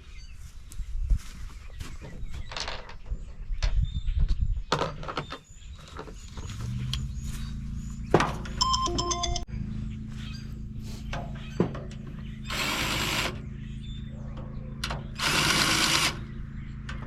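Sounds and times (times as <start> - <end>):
power drill running: 12.5 - 13.4, 15.2 - 16.2.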